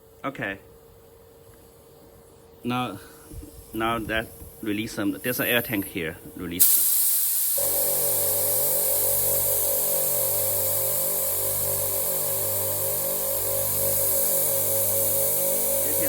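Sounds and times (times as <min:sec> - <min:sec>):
compressed air hissing: 0:01.3 - 0:16.0
low pulsing hum: 0:07.6 - 0:16.0.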